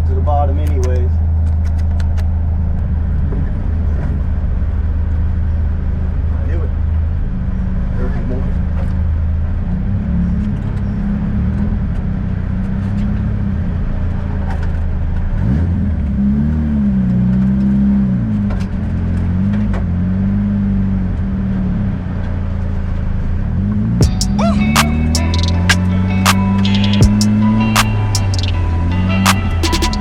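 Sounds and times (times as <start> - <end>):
car engine and road noise: 0.0 - 30.0
music: 24.0 - 30.0.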